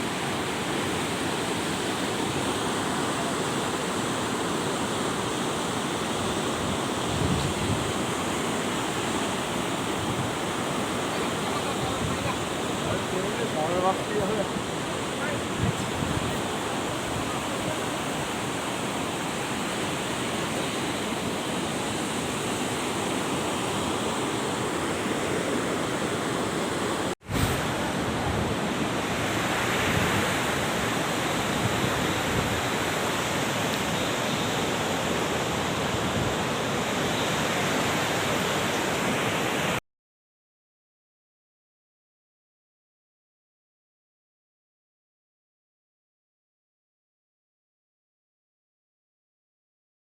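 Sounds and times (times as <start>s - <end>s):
fast-flowing water rushing: 0.0s - 39.8s.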